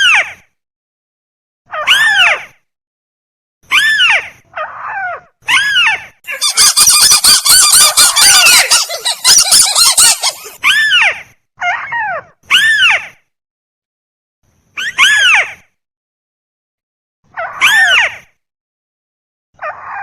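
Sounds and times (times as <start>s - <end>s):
crake calls: 6.3s - 10.6s.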